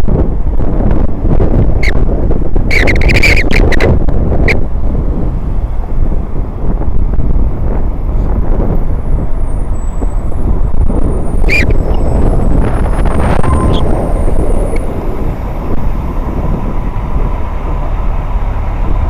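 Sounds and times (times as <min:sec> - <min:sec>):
loud low outdoor rumble: 0:00.0 - 0:19.0
bird chirp: 0:11.4 - 0:11.8.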